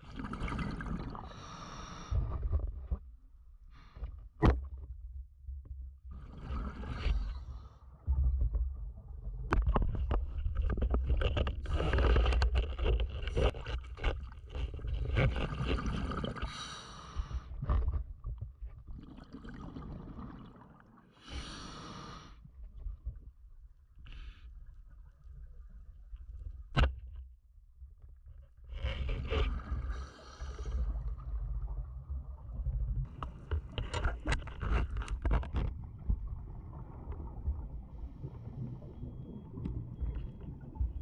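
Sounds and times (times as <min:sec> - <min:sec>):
water sloshing and gurgling: 0:00.0 - 0:41.0.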